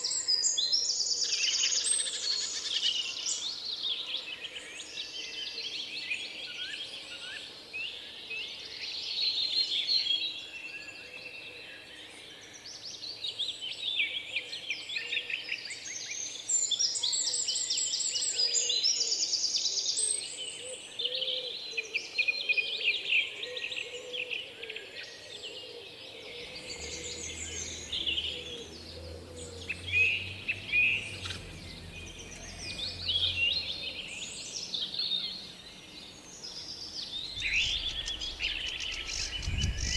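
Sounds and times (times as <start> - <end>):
songbirds chirping and singing: 23.6 - 39.9
low steady hum: 26.4 - 36.2.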